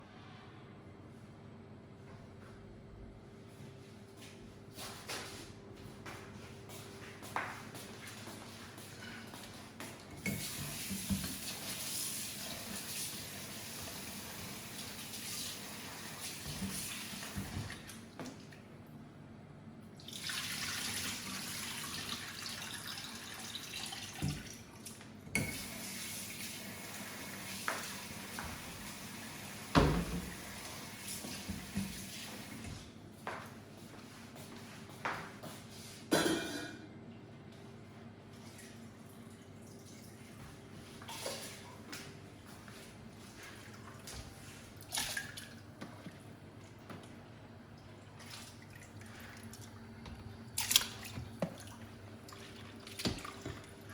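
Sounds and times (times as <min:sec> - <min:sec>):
tap water running into sink: 0:10.2 - 0:17.8, 0:26.7 - 0:32.6
water splashing: 0:50.5 - 0:53.9.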